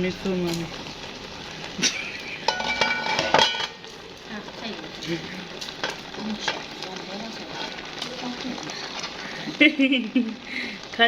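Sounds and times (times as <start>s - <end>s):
metal spoon clinking in pot: 2.5s - 3.8s.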